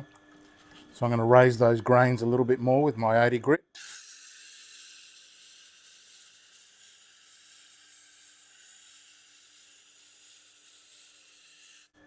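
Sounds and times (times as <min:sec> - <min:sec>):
gritty hiss of grinding wheel: 0:03.8 - 0:12.0.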